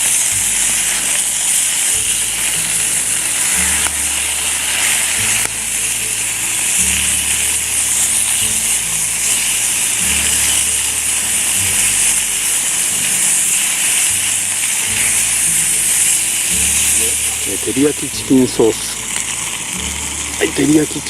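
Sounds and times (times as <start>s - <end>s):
background music with bass line: 0.0s - 21.0s
chicken sizzling in a pan: 0.0s - 21.0s.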